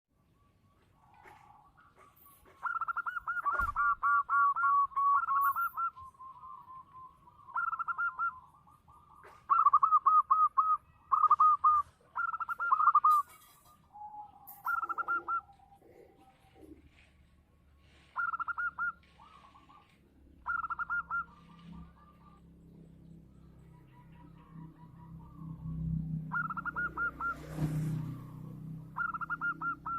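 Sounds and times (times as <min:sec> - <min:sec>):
dove staccato cooing: 0:01.1 - 0:17.2, 0:17.8 - 0:22.5, 0:23.5 - 0:29.9.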